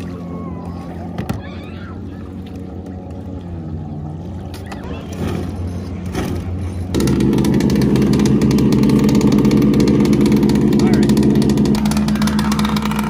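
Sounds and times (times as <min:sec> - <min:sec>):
model boat engine running: 0:00.0 - 0:13.0.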